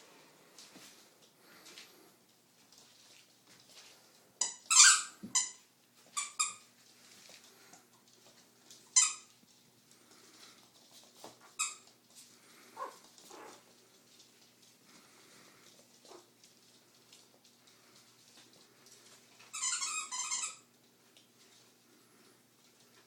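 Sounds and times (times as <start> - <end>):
puppies squeaking: 4.4 - 6.7, 19.4 - 20.7.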